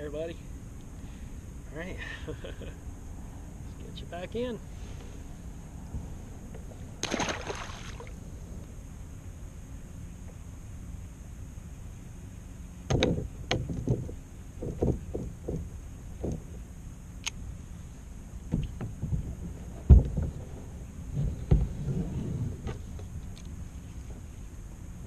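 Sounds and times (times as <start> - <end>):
gear knocking against kayak hull: 12.9 - 16.6.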